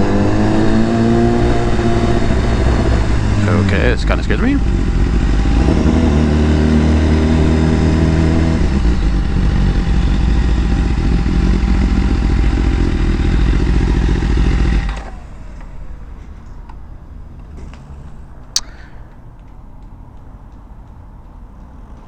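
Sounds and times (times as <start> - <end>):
motorcycle engine running: 0.0 - 16.6.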